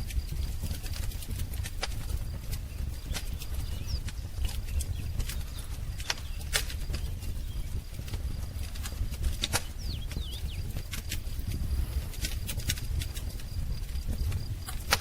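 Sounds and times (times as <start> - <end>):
low steady rumble: 0.0 - 15.0
wood fire crackling and popping: 0.0 - 15.0
bird chirps: 2.7 - 8.0, 9.4 - 10.7.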